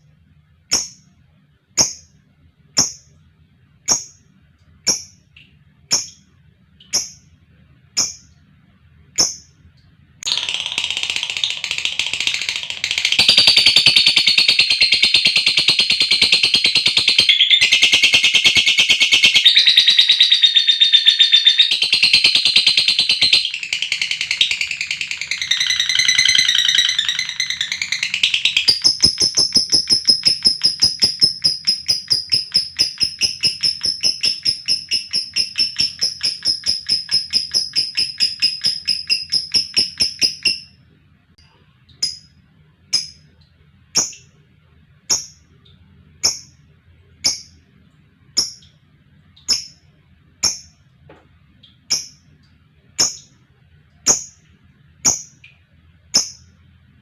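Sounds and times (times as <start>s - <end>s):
lovebird chattering trill: 3.9s - 4.2s, 4.9s - 5.2s, 5.9s - 6.2s, 6.8s - 7.3s, 9.2s - 9.5s, 10.3s - 40.7s, 44.0s - 44.3s.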